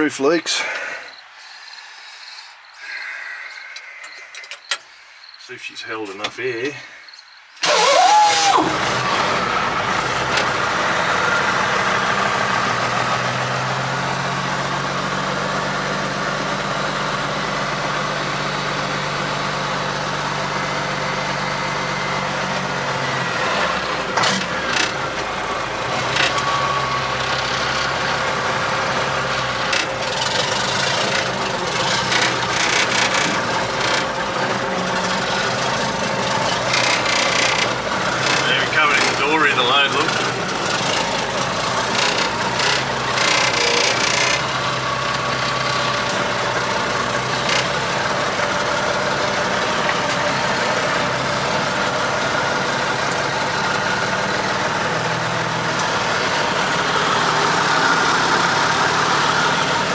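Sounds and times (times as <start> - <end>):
diesel truck engine starting and idling: 7.6 - 59.9
sharp clicks and knocks: 29.7 - 44.6.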